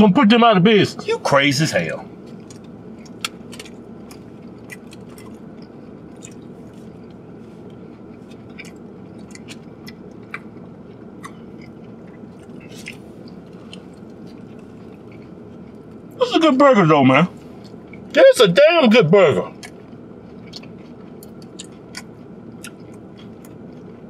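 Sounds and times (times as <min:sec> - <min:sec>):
steady low hum: 0:00.0 - 0:24.0
wet chewing clicks and smacks: 0:02.3 - 0:16.2, 0:19.5 - 0:24.0.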